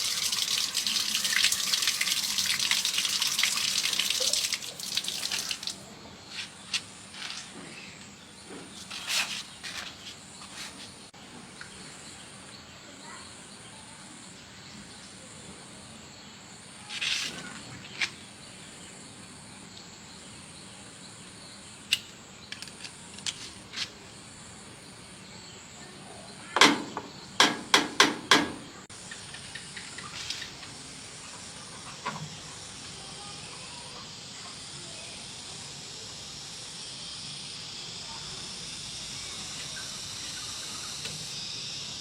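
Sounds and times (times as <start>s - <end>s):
steady hiss: 0.0s - 8.2s, 28.8s - 42.0s
sharp knocks and clicks: 26.6s - 28.6s.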